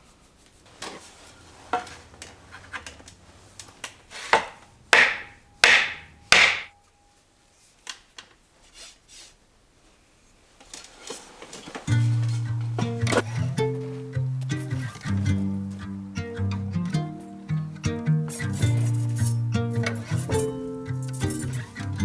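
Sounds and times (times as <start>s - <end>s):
scraping strokes: 18.3s - 21.8s.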